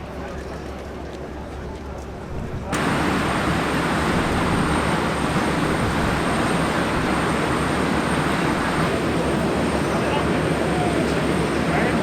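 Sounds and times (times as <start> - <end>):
high engine whine: 2.7 - 12.0
jet engines roaring: 2.7 - 12.0.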